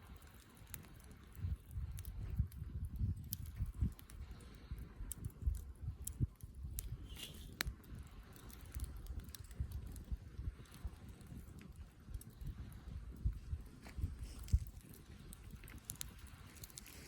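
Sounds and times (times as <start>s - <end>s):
campfire wood crackling: 0.0s - 17.0s
low fire rumble: 0.0s - 17.0s.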